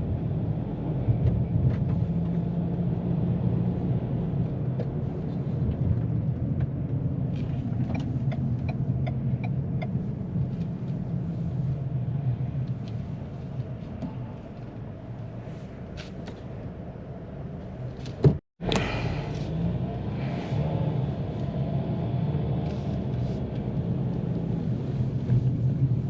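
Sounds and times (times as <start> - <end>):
road and wind noise in car cabin: 0.0 - 26.0.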